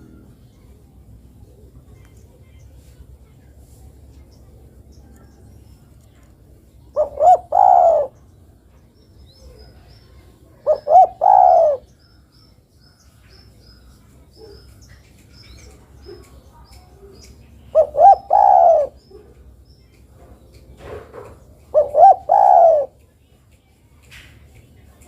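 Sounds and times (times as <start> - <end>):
dove cooing: 7.0 - 8.2, 10.6 - 11.9, 17.0 - 19.4, 20.8 - 23.0.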